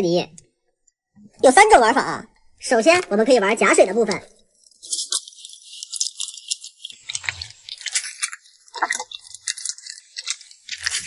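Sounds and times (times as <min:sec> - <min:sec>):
slime squeezed crackling and popping: 0:04.0 - 0:11.0.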